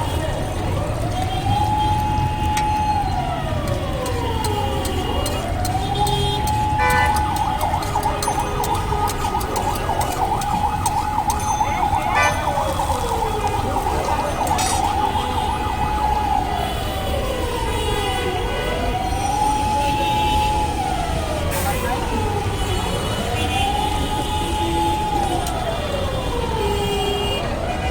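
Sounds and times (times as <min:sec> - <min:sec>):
low traffic rumble: 0:00.0 - 0:27.9
vehicle siren wailing: 0:00.0 - 0:27.9
sharp clicks: 0:03.6 - 0:11.4.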